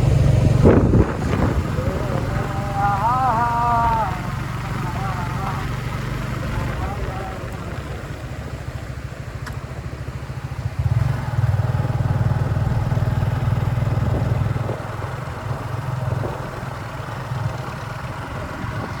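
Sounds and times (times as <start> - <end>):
engine with fast low throb: 0.0 - 19.0.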